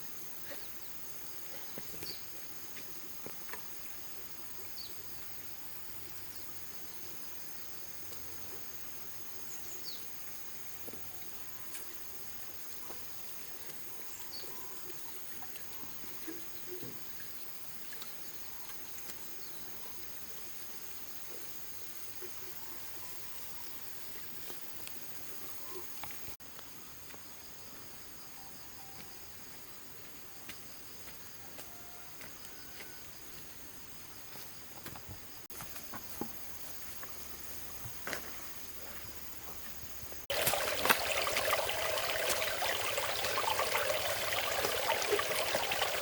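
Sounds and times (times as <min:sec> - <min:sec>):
faint outdoor hiss: 0:00.0 - 0:46.0
insect chorus trilling: 0:38.0 - 0:46.0.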